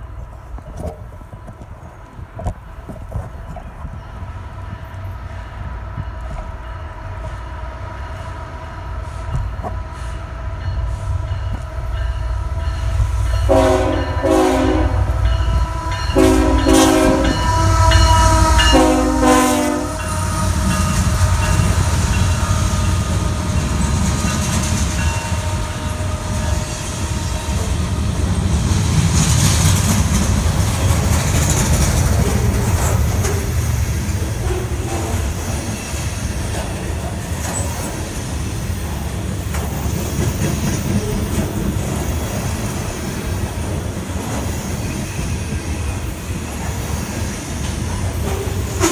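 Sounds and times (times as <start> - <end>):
diesel locomotive rumbling: 0.0 - 48.9
train wheels on rails: 0.0 - 48.9
train air horn blasts: 13.3 - 23.5, 48.5 - 48.9.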